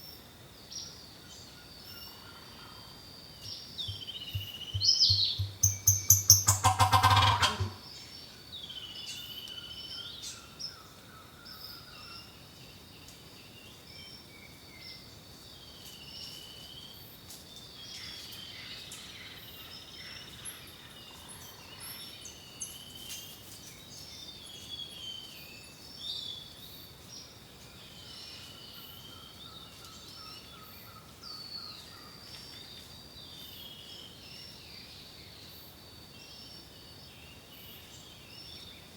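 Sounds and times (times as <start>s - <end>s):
birds singing: 0.8s - 12.8s
steady thin high tone: 3.9s - 6.7s
soft bird trill: 3.9s - 7.8s
loud rapid rattling call: 5.2s - 7.8s.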